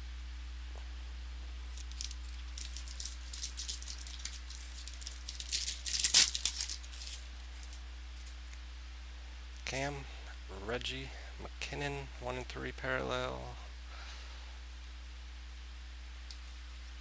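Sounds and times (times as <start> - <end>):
packaging crinkle: 1.6 - 8.4
light rustling of packaging: 1.6 - 8.5.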